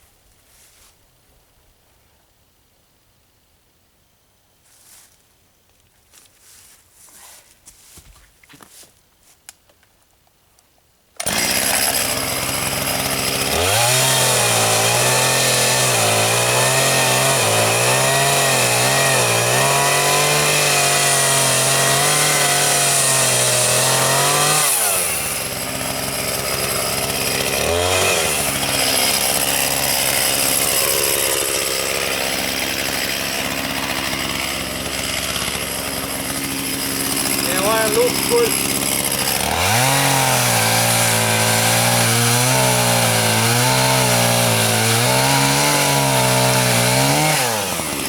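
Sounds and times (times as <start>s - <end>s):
chainsaw cutting: 11.2s - 48.0s.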